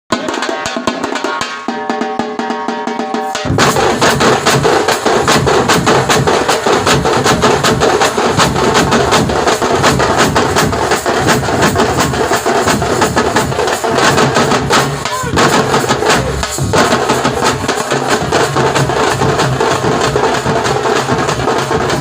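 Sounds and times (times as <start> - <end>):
frame drums beaten with sticks: 0.1 - 22.0.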